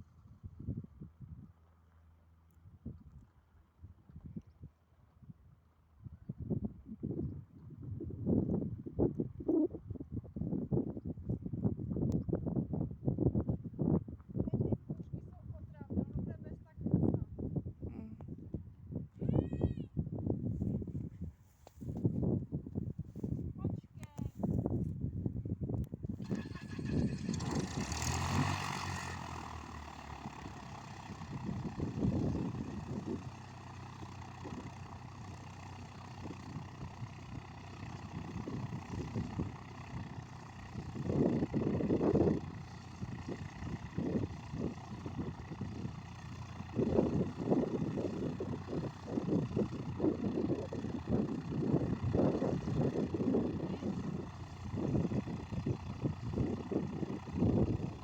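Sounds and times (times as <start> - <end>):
light aircraft engine droning: 20.5 - 58.0.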